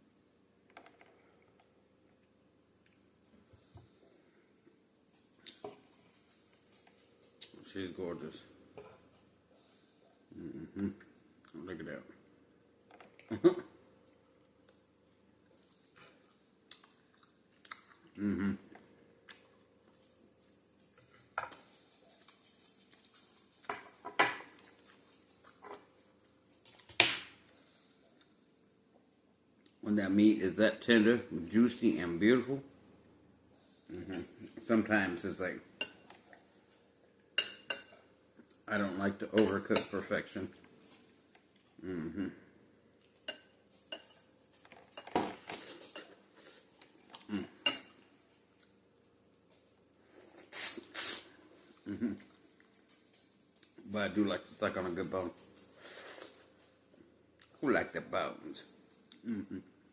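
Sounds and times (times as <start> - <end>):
utensils clinking against dishes: 35.8 - 38.0, 39.3 - 40.2, 43.1 - 46.2.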